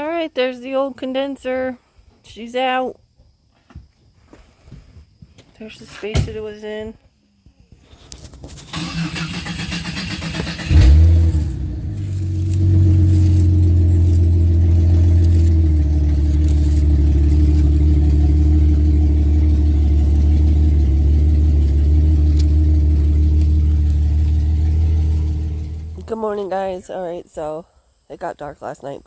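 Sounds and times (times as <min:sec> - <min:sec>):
car engine starting and idling: 0:08.5 - 0:26.9.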